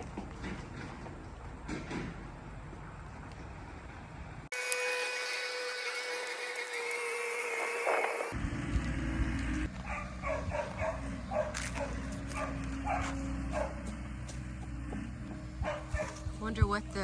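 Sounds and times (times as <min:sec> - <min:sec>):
diesel engine hum: 0:08.3 - 0:17.0
dog barking: 0:09.8 - 0:14.0, 0:15.6 - 0:16.3.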